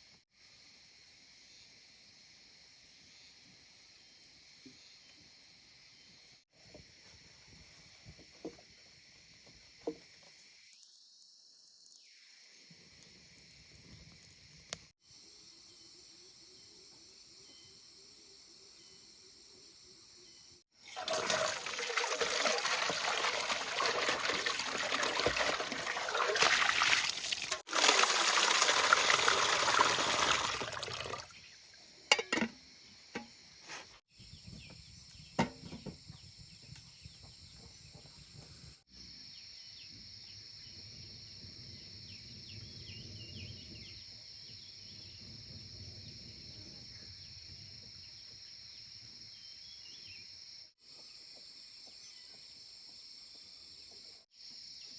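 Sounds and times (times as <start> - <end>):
crickets chirping: 0.3 - 27.3, 28.1 - 54.9
water pouring and splashing: 20.8 - 31.4.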